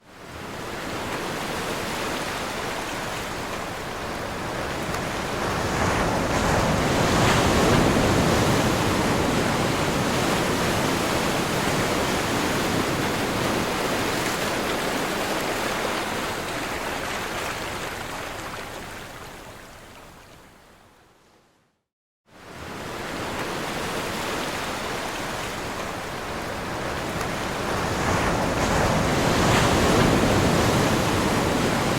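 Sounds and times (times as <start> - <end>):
ocean surf breaking: 0.6 - 18.6, 22.5 - 31.9.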